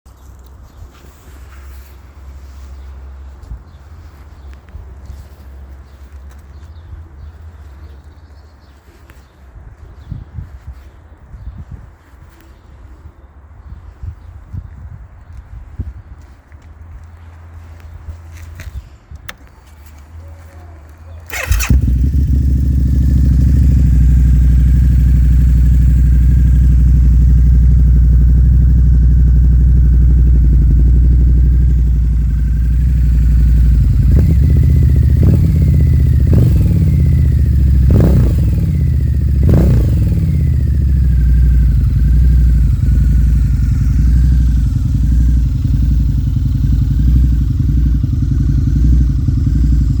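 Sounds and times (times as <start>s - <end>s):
motorcycle engine idling: 21.2s - 50.0s
motorcycle throttle blips: 21.2s - 50.0s.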